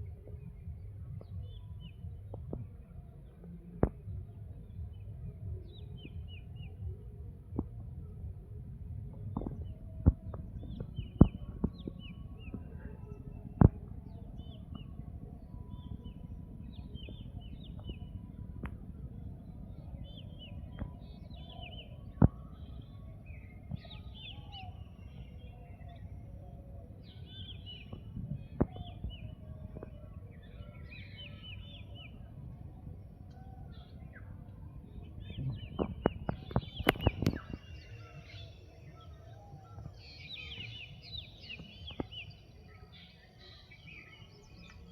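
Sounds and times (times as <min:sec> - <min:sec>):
steady low rumble: 0:00.0 - 0:42.8
small birds chirping: 0:09.0 - 0:44.9.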